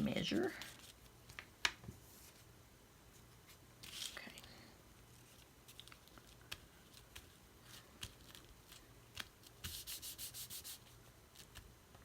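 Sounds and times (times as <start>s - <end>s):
rubbing on paper page: 9.6s - 11.0s.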